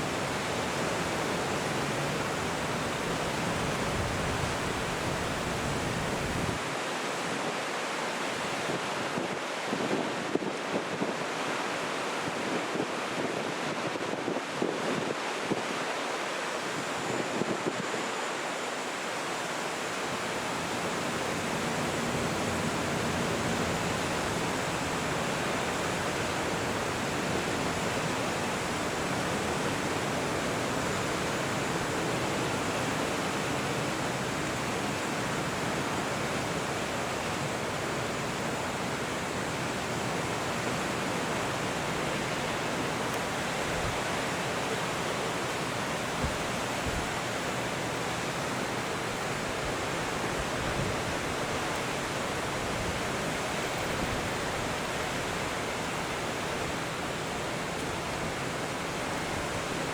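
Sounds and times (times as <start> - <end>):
wind buffeting microphone: 0.0 - 6.6
rushing water: 0.0 - 59.9.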